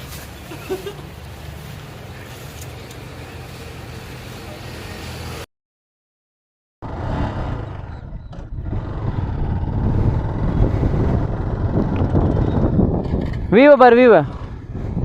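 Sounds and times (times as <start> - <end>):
motorcycle engine rumble: 6.8 - 13.6
wind buffeting microphone: 7.1 - 15.0.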